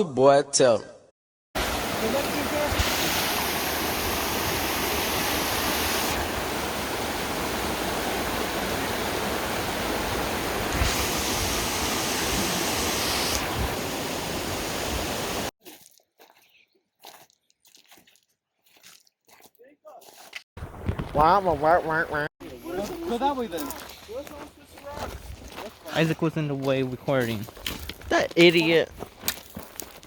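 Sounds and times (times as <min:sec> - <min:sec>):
rushing water hiss: 0:01.6 - 0:15.5.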